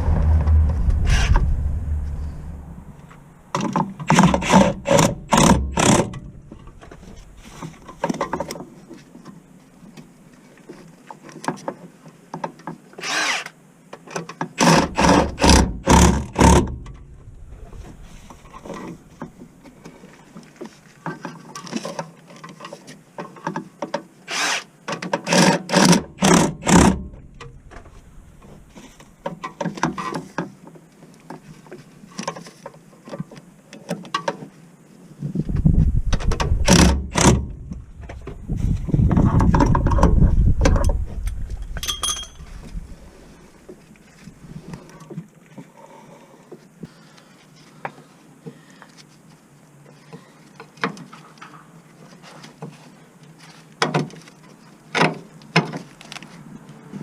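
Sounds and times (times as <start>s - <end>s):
tools working on car: 3.6s - 7.2s, 24.3s - 28.6s.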